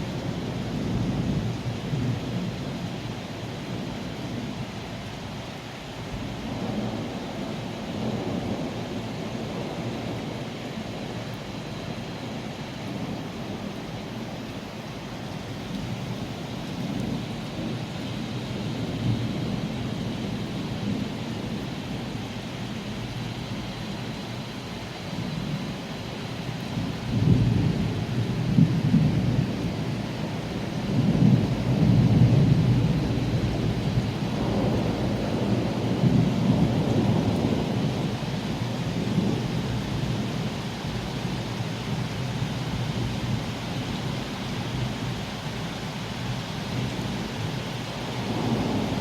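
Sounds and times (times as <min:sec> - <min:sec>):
steady rain: 0:00.0 - 0:49.0
rolling thunder: 0:26.6 - 0:40.6, 0:48.1 - 0:49.0.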